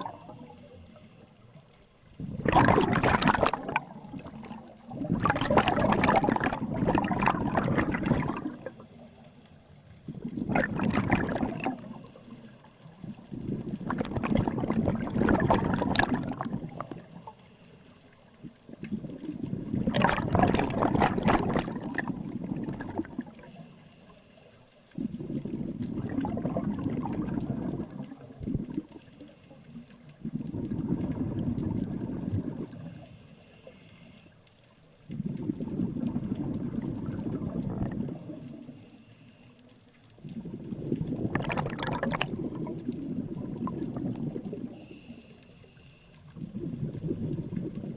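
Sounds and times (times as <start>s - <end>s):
diver exhaling bubbles: 0.0s - 0.4s, 2.2s - 8.8s, 10.1s - 12.1s, 13.0s - 17.1s, 18.8s - 23.5s, 25.0s - 29.0s, 30.3s - 32.9s, 35.2s - 38.3s, 40.2s - 44.8s, 46.4s - 47.9s
diver inhaling through regulator: 32.7s - 34.4s, 44.6s - 46.3s.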